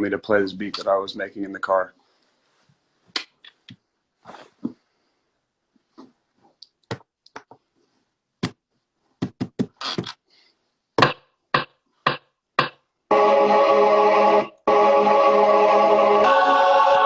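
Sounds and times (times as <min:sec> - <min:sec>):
sharp taps and knocks: 0:11.0 - 0:12.8.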